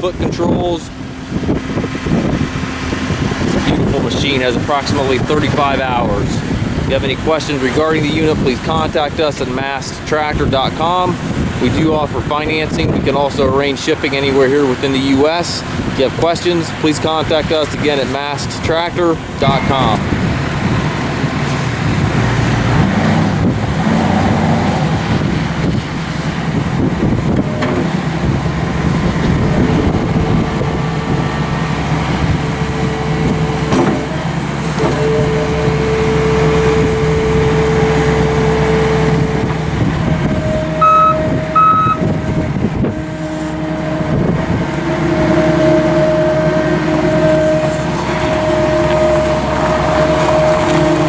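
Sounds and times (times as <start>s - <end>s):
diesel engine running steadily: 0.0s - 51.0s
steady tone: 26.8s - 51.0s
short beeps: 34.9s - 39.6s, 40.4s - 42.1s.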